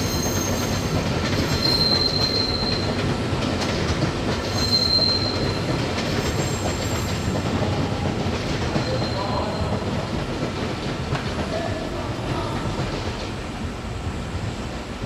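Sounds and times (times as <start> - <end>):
train wheel squeals: 0.0 - 10.2
train rumbling on track: 0.0 - 15.0.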